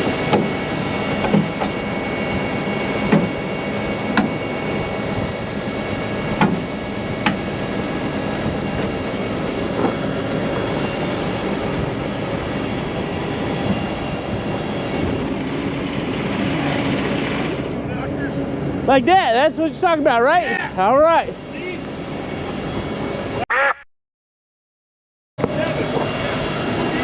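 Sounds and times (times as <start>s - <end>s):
truck diesel engine running: 0.0s - 23.4s
sharp knocks: 3.1s - 3.4s, 6.4s - 7.4s.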